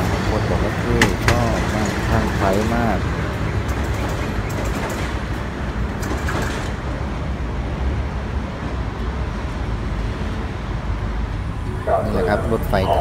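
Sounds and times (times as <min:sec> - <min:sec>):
wheels clicking over rails: 0:00.0 - 0:07.2
train rumbling: 0:00.0 - 0:13.0.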